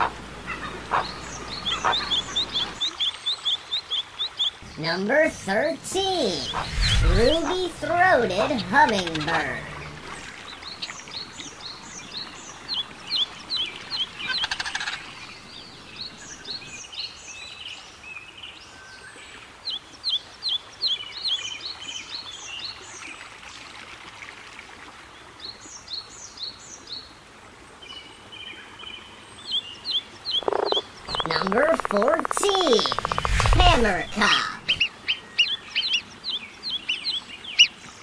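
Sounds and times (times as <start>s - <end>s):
small birds chirping: 0.0s - 5.1s, 6.0s - 17.7s, 29.4s - 38.0s
faint outdoor hiss: 0.0s - 38.0s.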